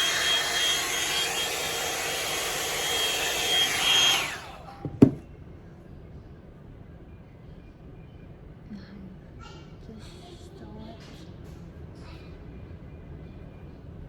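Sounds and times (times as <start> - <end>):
blow-dryer brush running: 0.0 - 5.2.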